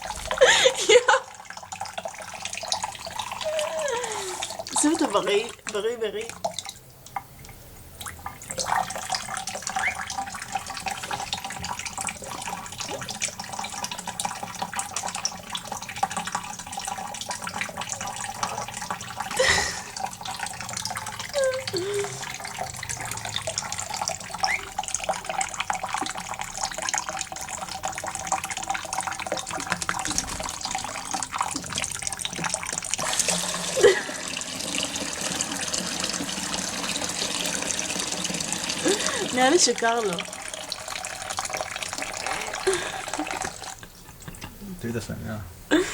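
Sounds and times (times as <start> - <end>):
tap water running and splashing: 0.0 - 44.6
parrot squeaks: 9.7 - 10.2, 24.4 - 24.8.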